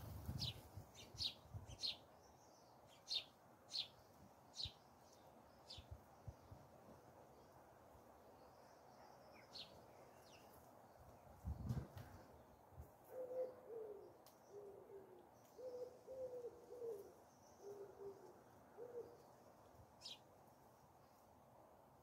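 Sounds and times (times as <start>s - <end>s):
bird hooting calls: 13.1s - 19.3s.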